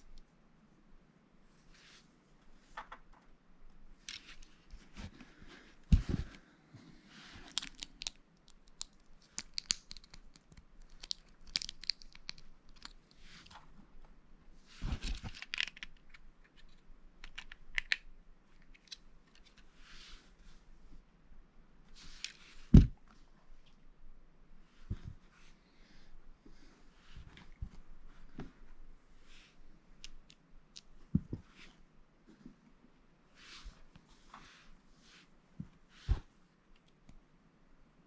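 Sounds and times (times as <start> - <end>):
lego pieces clicking together: 7.5 - 13.1, 15.4 - 18.1.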